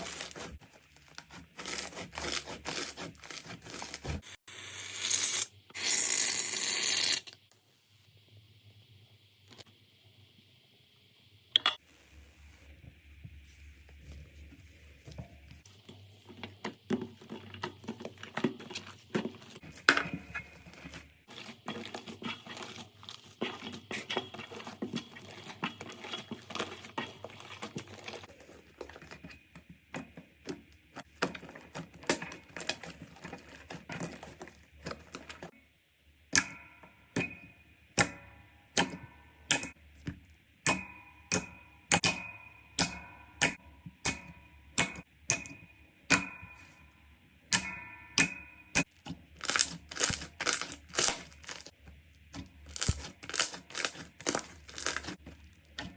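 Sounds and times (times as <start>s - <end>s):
slime crackling and popping: 48.8s - 51.7s, 52.6s - 55.8s.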